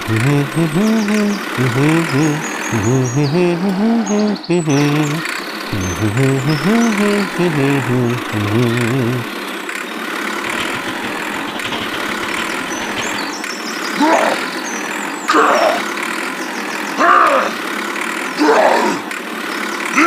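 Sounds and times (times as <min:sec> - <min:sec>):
short rising and falling cries: 0:00.0 - 0:09.3
engine running: 0:00.0 - 0:20.0.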